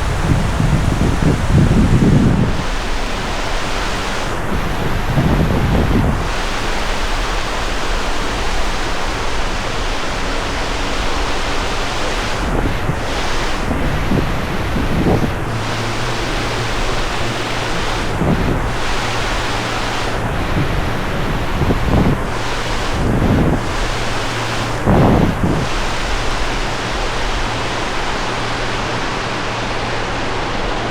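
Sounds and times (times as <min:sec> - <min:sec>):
wind rushing: 0:00.0 - 0:06.6, 0:11.0 - 0:30.9
surf washing on a beach: 0:00.0 - 0:30.9
wind buffeting microphone: 0:00.0 - 0:30.9.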